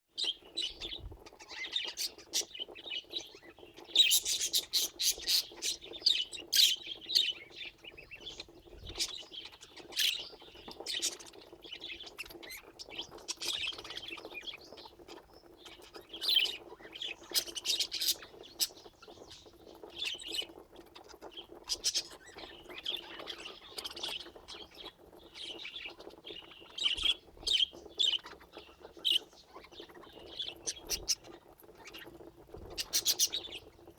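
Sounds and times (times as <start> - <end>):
budgerigars chirping: 0.2 - 33.9.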